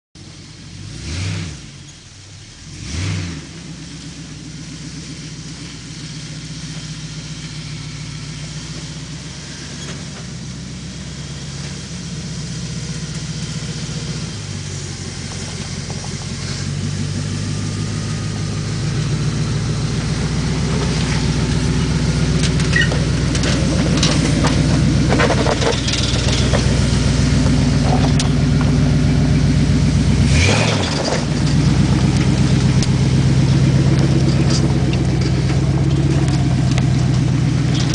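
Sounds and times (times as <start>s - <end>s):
truck engine running: 0.2s - 37.9s
knocks and rattles: 22.3s - 29.0s, 30.5s - 37.9s.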